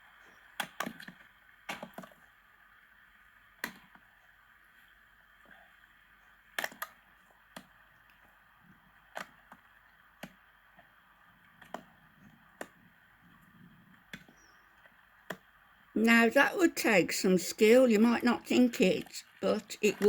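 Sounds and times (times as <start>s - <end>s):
faint steady hiss: 0.0s - 20.0s
sharp irregular knocks and clicks: 0.6s - 2.1s, 9.1s - 9.6s.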